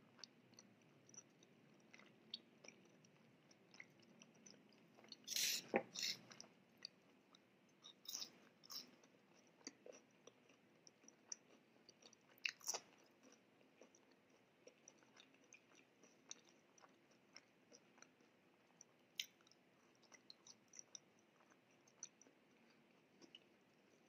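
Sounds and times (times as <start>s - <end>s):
wet mouth clicks: 2.7s - 6.5s, 19.2s - 19.5s.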